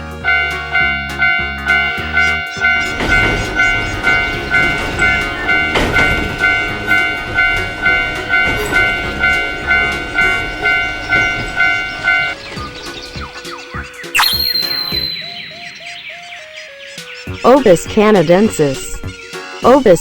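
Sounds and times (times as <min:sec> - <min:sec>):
train passing with rumbling clatter: 0:00.0 - 0:14.0
railroad crossing bell ringing: 0:00.2 - 0:12.4, 0:14.2 - 0:16.2.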